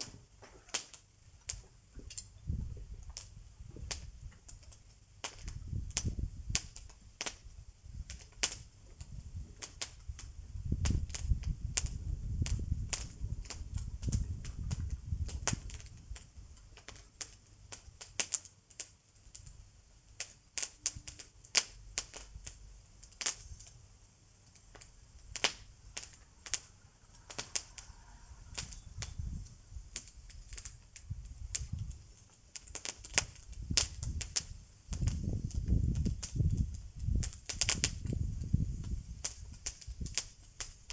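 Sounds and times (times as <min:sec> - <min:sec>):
bonfire crackling and popping: 0:00.0 - 0:40.9
low rumble: 0:25.7 - 0:29.9.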